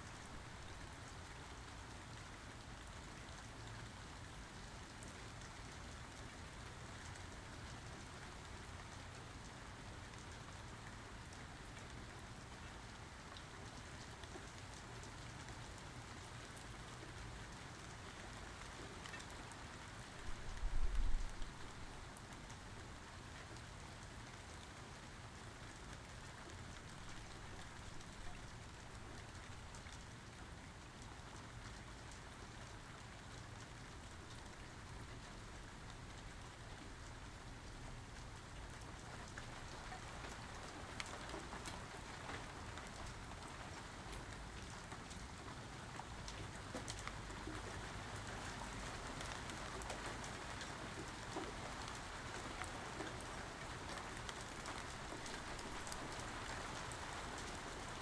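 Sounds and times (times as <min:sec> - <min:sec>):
steady rain falling: 0:00.0 - 0:58.0
raindrops ticking: 0:46.0 - 0:58.0.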